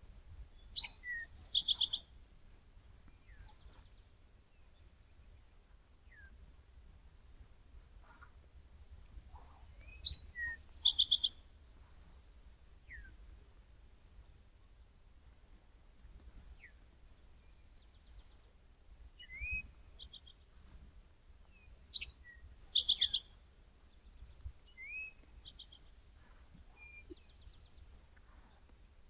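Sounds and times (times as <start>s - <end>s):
songbirds chirping and whistling: 0.6s - 6.4s, 9.3s - 11.5s, 12.8s - 13.2s, 19.2s - 28.7s.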